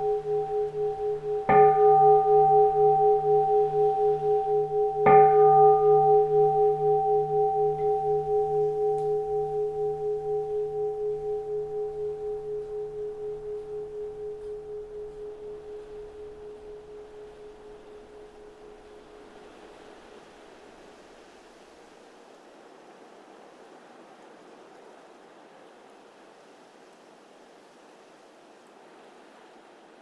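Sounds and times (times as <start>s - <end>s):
bowl-shaped temple bell ringing: 0.0s - 19.6s.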